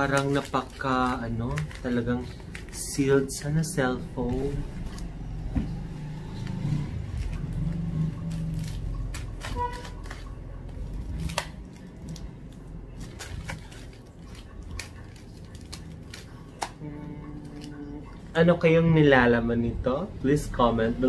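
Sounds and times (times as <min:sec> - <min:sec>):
packaging clicks and crinkles: 0:00.0 - 0:05.2, 0:07.1 - 0:16.8
cardboard parcel being handled: 0:00.0 - 0:05.4, 0:06.4 - 0:16.7.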